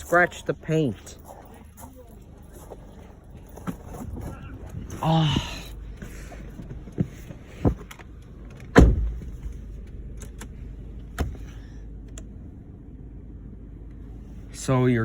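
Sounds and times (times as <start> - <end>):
car engine idling: 0.0 - 15.0
car door clicks and knocks: 7.0 - 9.6, 11.1 - 11.6
heavy car door thump: 8.6 - 9.6, 11.1 - 11.6.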